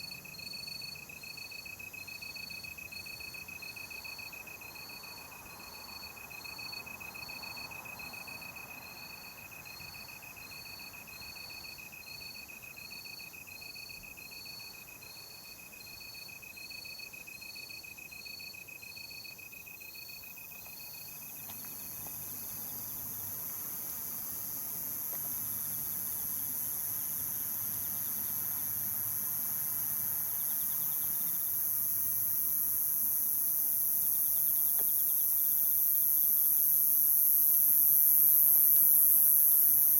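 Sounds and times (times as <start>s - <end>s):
cricket-like chirps: 0.0s - 39.9s
high insect trill: 0.0s - 39.9s
very high insect buzz: 20.7s - 39.9s.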